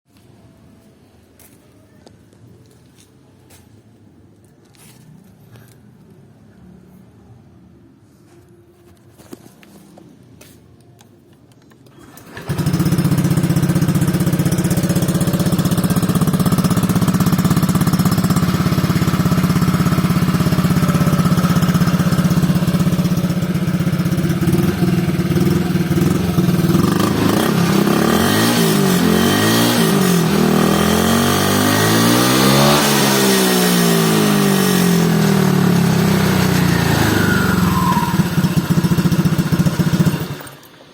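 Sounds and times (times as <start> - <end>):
scooter engine throttle blips: 12.0 - 30.4, 35.8 - 40.5
scooter engine idling: 12.0 - 32.0, 32.8 - 40.9.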